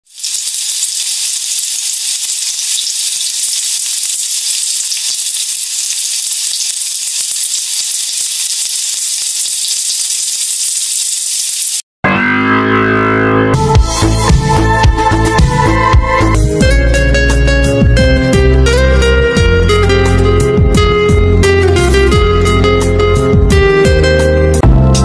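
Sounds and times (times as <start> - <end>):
rice sizzling in a pan: 0.0 - 11.8.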